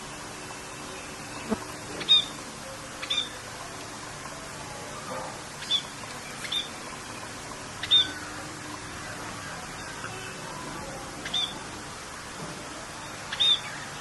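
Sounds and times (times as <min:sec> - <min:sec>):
rain hiss: 0:00.0 - 0:14.0
songbird chirping: 0:11.2 - 0:11.6.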